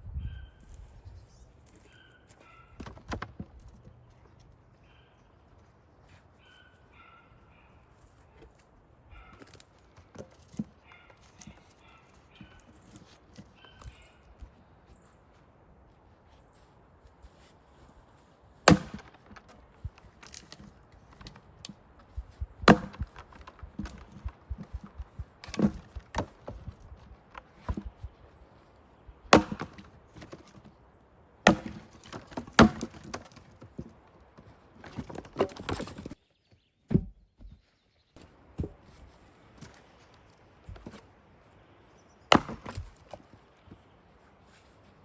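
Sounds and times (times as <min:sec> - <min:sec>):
wood knocking and clattering: 0:02.8 - 0:04.0, 0:18.7 - 0:28.2, 0:29.3 - 0:30.8, 0:31.4 - 0:36.2, 0:42.3 - 0:43.8
axe striking wood: 0:18.6 - 0:28.1, 0:29.2 - 0:30.7, 0:31.4 - 0:33.9, 0:42.3 - 0:43.2.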